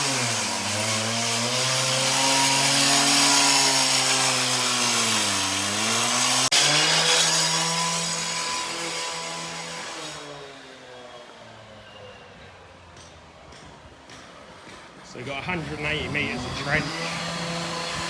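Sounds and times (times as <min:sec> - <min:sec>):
petrol cutting saw engine: 0:00.0 - 0:11.8, 0:15.1 - 0:18.0
harsh hissing cutting noise: 0:15.4 - 0:18.0.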